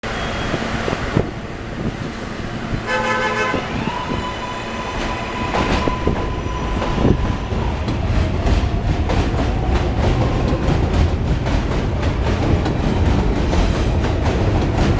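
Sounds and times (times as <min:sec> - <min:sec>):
subway train horn: 0:02.7 - 0:08.4.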